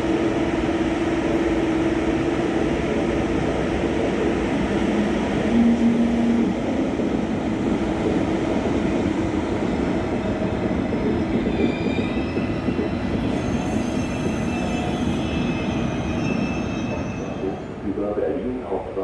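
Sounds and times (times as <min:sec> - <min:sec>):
train wheels rumbling on rails: 0:07.0 - 0:19.0
high wheel squeal: 0:11.3 - 0:17.8.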